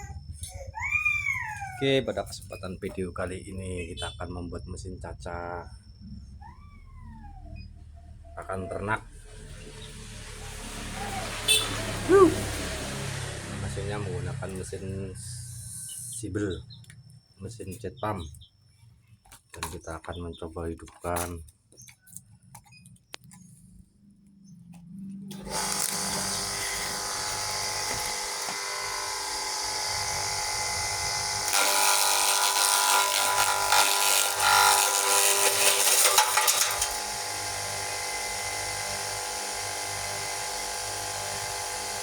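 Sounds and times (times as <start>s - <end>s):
feed chopper motor whining: 8.2s - 16.7s, 24.8s - 42.0s.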